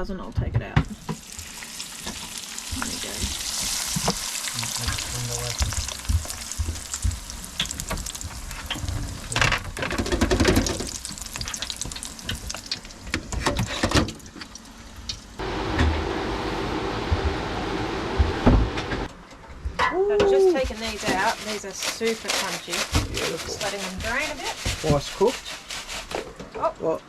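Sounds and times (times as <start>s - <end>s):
chips deep-frying in oil: 0.9s - 15.3s, 20.6s - 26.3s
steady hum: 15.4s - 19.1s.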